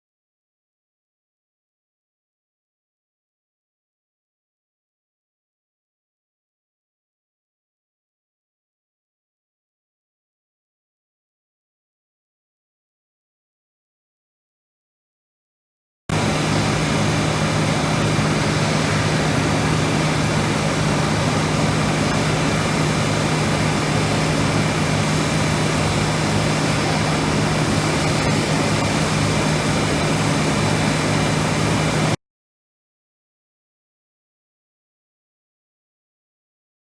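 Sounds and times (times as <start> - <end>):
grinder machine humming: 16.1 - 32.2.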